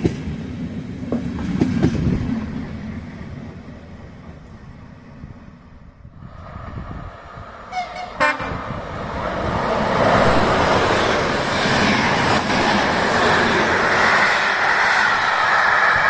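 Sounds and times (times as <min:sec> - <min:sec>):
train passing close by: 0:00.0 - 0:16.0
train horn toots: 0:07.7 - 0:08.6.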